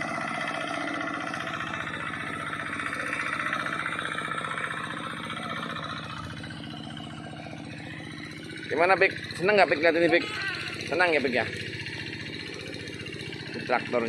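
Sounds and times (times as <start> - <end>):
tractor engine chugging: 0.0 - 14.0.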